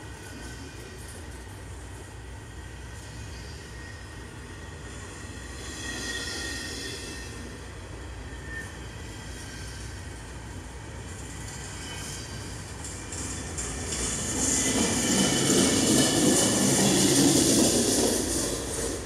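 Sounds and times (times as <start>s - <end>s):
freight train wheels rumbling: 0.0s - 19.0s
high-pitched wheel squeal: 3.1s - 10.6s, 11.3s - 18.9s.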